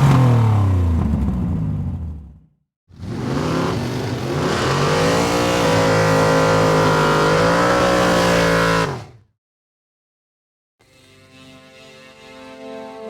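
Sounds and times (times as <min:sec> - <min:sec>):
car engine revving hard: 0:00.0 - 0:01.5, 0:03.0 - 0:09.2.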